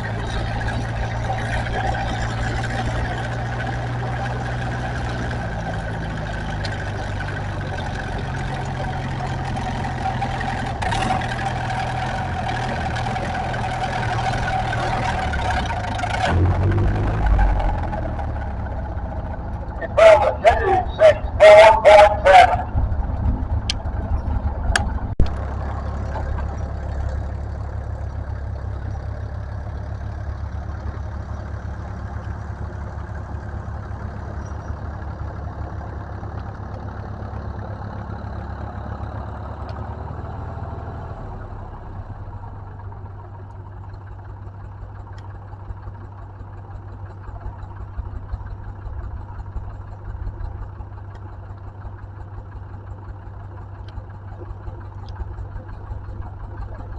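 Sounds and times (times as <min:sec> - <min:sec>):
tractor engine running: 0:00.0 - 0:56.9
sharp clicks: 0:24.7 - 0:25.4.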